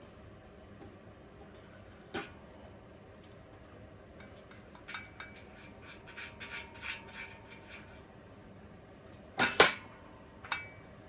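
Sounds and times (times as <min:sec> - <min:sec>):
metal fittings clinking: 0:04.2 - 0:08.1.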